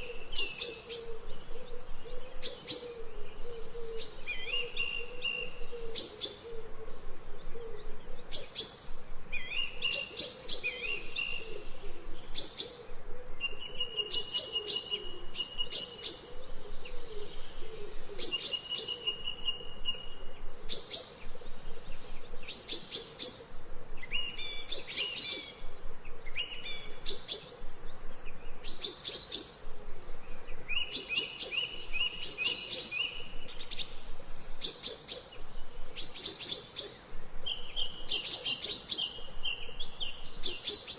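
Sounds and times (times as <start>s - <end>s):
small birds chirping: 13.5s - 40.9s.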